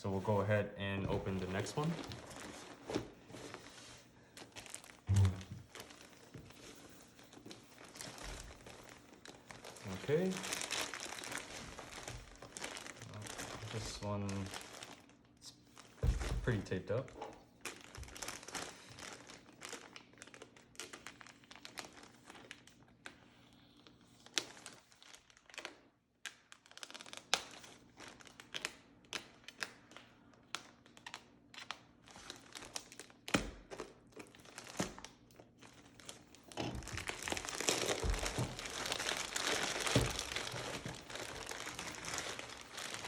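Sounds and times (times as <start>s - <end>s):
plastic packaging crinkling: 1.1s - 23.2s, 23.8s - 43.0s.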